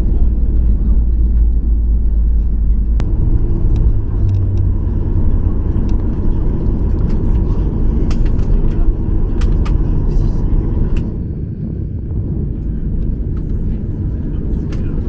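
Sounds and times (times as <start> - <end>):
airplane cabin rumble: 0.0 - 15.0
rattles and clicks: 2.3 - 11.1.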